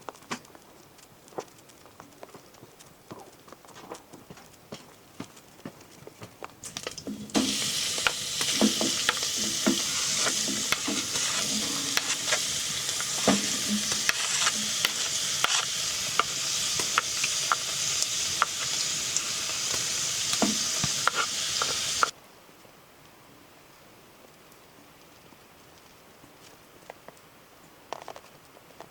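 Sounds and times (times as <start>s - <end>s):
food sizzling in a pan: 6.6s - 22.2s.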